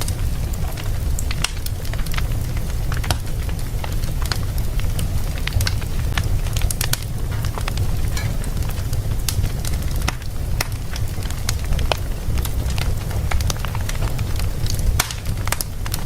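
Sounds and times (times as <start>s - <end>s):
fire crackling: 0.0s - 16.0s.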